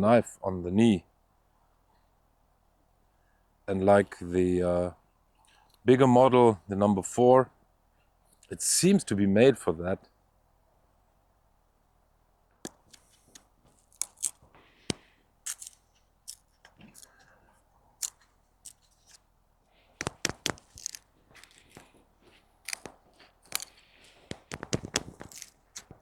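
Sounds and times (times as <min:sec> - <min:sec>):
knife carving wood: 0:12.7 - 0:26.0.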